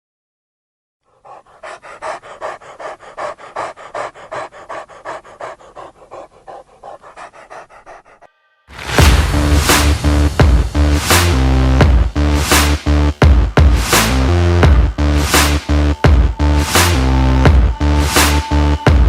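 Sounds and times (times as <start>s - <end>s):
dog panting: 1.0s - 8.3s.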